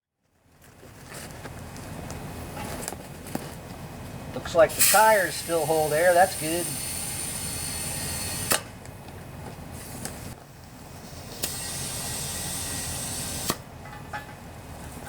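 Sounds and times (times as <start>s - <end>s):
compressed air hissing: 4.6s - 8.6s.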